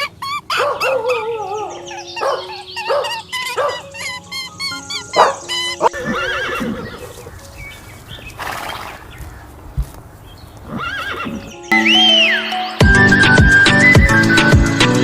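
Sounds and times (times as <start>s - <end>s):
animal call rising and falling: 0.0s - 7.3s, 10.7s - 11.6s
music: 1.8s - 8.0s, 11.5s - 15.0s.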